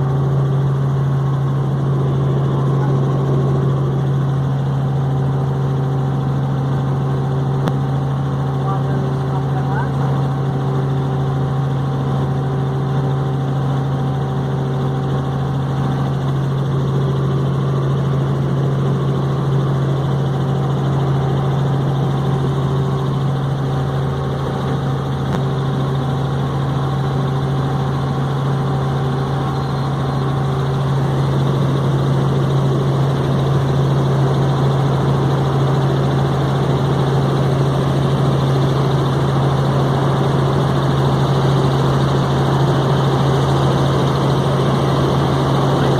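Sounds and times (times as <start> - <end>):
helicopter rotor and engine drone: 0.0 - 45.9.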